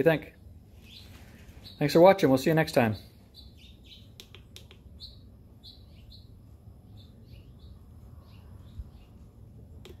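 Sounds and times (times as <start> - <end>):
small birds chirping: 0.0 - 10.0
steady low rumble: 4.8 - 10.0.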